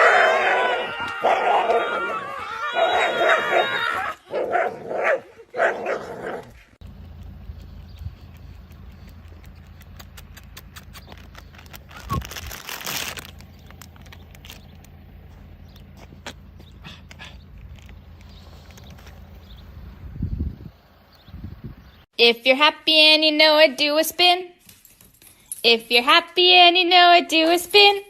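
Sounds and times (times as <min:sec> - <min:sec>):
dog howling: 0:00.0 - 0:06.5.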